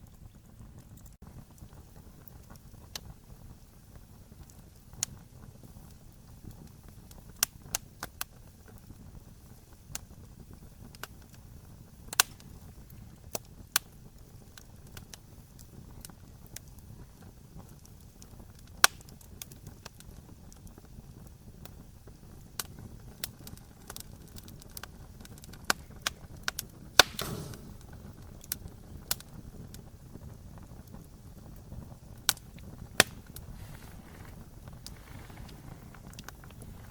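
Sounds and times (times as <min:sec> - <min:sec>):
low rumble of flame: 0:00.0 - 0:36.9
wood fire crackling and popping: 0:00.0 - 0:36.9
brief hiss: 0:27.0 - 0:27.9.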